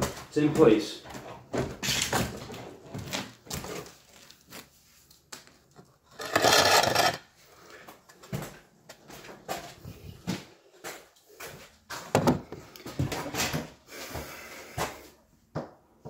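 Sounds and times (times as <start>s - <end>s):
wood and hardware clattering: 12.0s - 13.7s.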